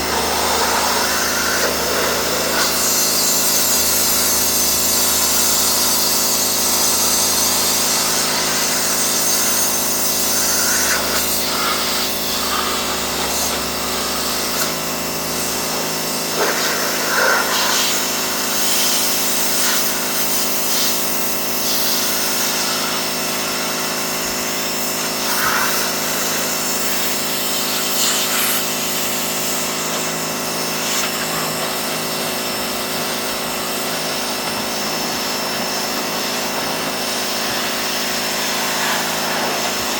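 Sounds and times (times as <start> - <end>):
high-pressure water spray hiss: 0.0 - 39.9
pressure washer motor hum: 0.0 - 39.9.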